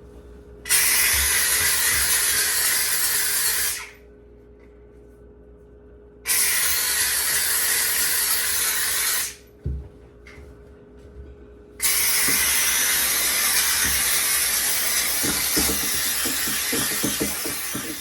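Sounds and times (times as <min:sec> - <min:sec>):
steam cleaner hissing: 0:00.7 - 0:03.8, 0:11.8 - 0:18.0.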